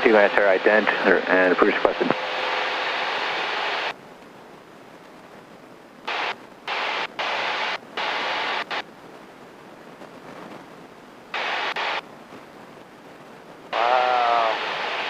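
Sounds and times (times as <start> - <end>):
radio static bursts: 0.0 - 4.0, 6.0 - 8.9, 10.0 - 12.1, 13.7 - 15.0
faint background hiss: 0.0 - 15.0.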